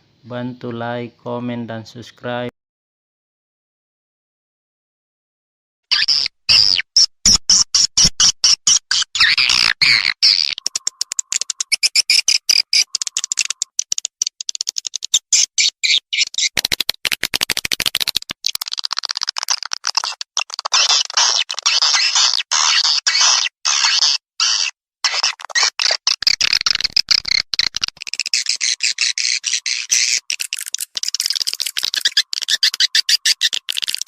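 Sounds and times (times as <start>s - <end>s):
high-pitched bird chirps and clicks: 5.9s - 34.0s.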